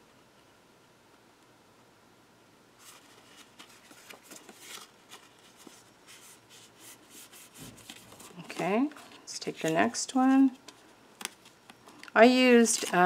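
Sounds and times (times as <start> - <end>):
paper rustling: 2.8 - 10.0, 10.6 - 13.0.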